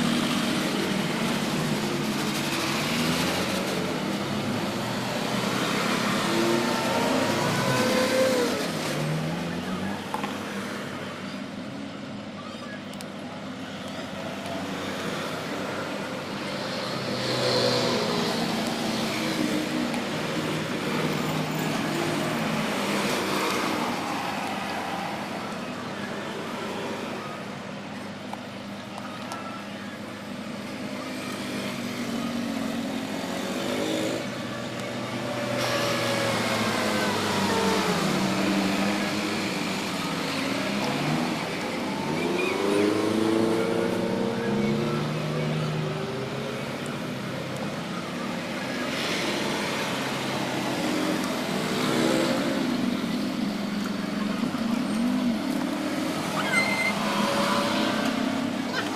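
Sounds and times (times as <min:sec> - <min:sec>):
vehicles passing: 0:00.0 - 0:58.9.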